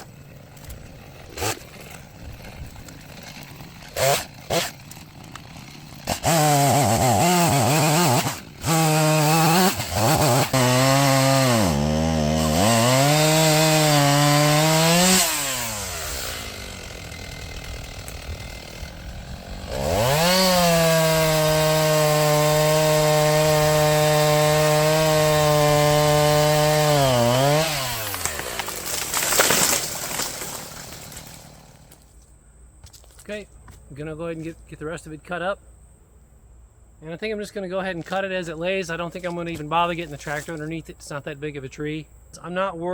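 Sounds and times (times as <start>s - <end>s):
chainsaw revving and cutting: 0.0s - 32.0s.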